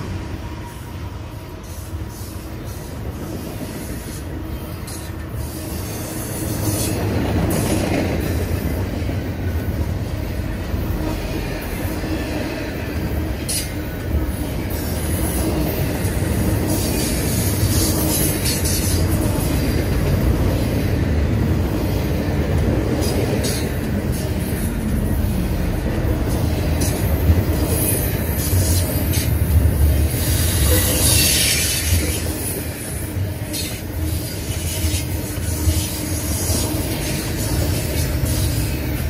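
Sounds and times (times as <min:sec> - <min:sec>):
freight train wheels rumbling on rail: 0:00.0 - 0:39.0
clicks and knocks from train cars: 0:06.5 - 0:09.1.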